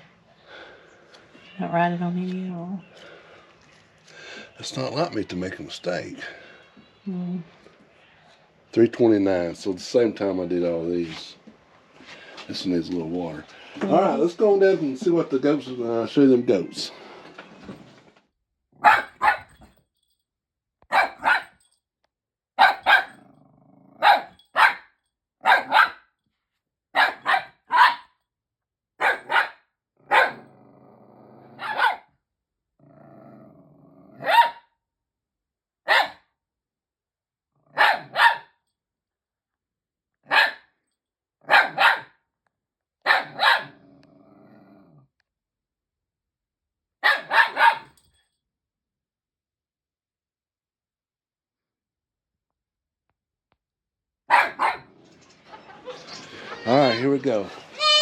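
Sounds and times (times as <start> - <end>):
dog barking: 18.8 - 19.6, 20.9 - 21.6, 22.6 - 23.2, 24.0 - 26.1, 27.0 - 28.1, 29.0 - 30.5, 31.6 - 32.1, 34.2 - 34.7, 35.9 - 36.2, 37.7 - 38.6, 40.2 - 40.7, 41.4 - 42.1, 43.0 - 43.8, 47.0 - 48.0, 54.3 - 54.9.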